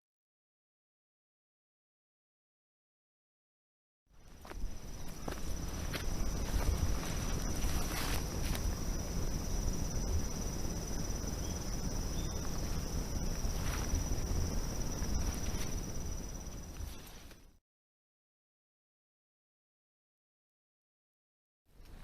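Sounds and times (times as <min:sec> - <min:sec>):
soft footsteps: 0:04.2 - 0:09.2, 0:12.4 - 0:17.5
high-pitched insect trill: 0:04.2 - 0:17.4.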